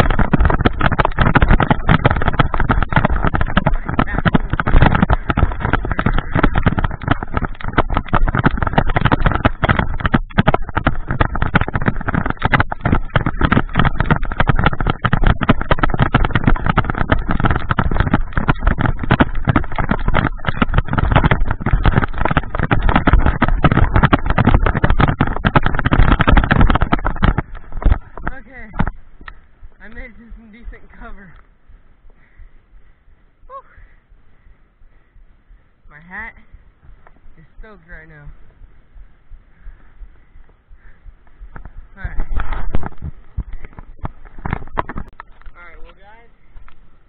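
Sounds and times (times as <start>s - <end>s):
rapid knocks: 0.0s - 31.5s, 39.6s - 45.5s
movement noise on microphone: 0.0s - 32.4s, 35.9s - 47.0s.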